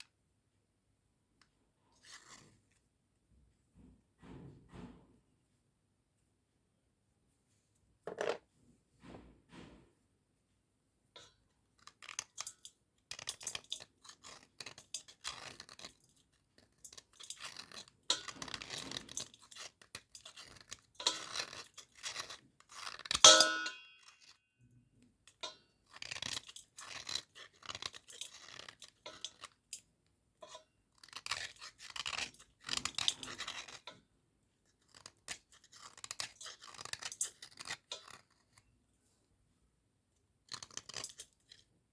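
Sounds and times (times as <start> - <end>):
slate pencils crunching and scraping: 11.8 - 23.2, 25.8 - 34.0, 34.8 - 38.7, 40.5 - 41.6.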